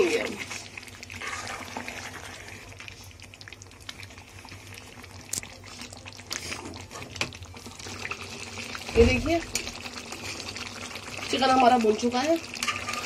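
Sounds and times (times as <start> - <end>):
food bubbling and sizzling in a pan: 0.0 - 13.0
metal spoon scraping a pan: 1.2 - 2.5, 12.6 - 13.0.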